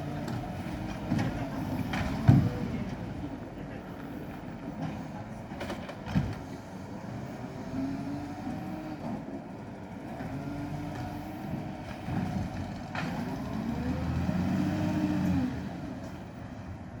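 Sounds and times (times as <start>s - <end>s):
garbage truck engine revving: 10.0s - 15.8s.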